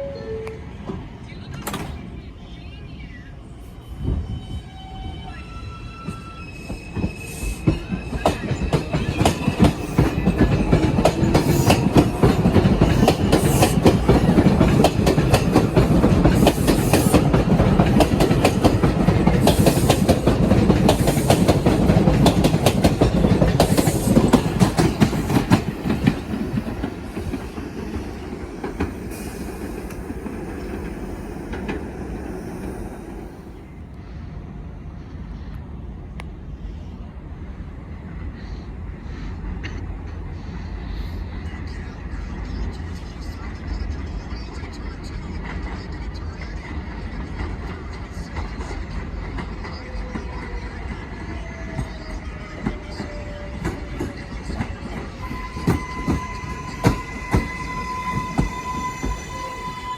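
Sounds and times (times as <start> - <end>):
wheel squeals: 3.9 - 14.4, 51.4 - 59.9
train wheels clicking over rail joints: 6.9 - 32.8, 47.3 - 59.8.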